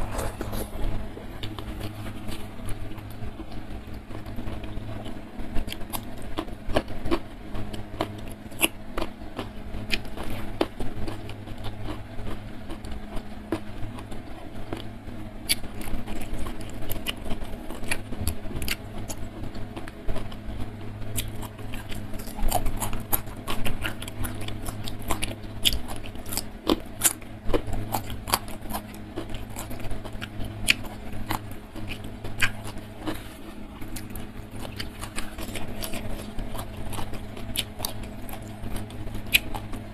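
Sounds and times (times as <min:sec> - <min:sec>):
low hum: 0:00.0 - 0:39.9
person chewing with mouth smacks: 0:21.2 - 0:39.8.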